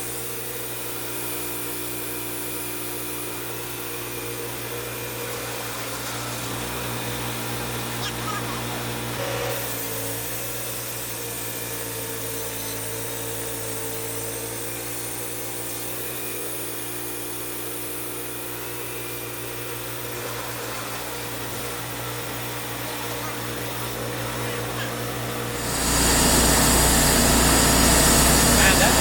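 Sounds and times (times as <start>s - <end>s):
sawmill machine drone: 0.0s - 29.0s
hiss of cutting: 25.5s - 29.0s.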